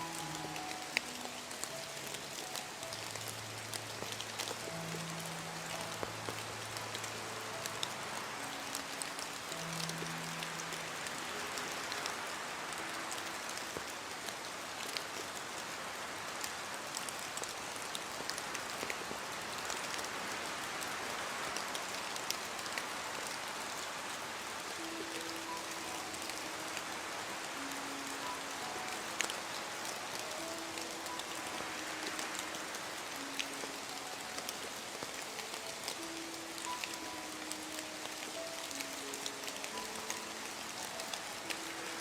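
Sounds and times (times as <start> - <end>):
rain falling: 0.0 - 42.0
soft low music notes: 0.0 - 42.0.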